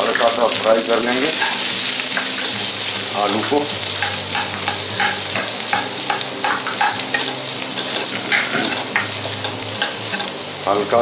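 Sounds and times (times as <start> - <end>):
food sizzling in oil: 0.0 - 11.0
spatula scraping a pan: 3.3 - 10.4.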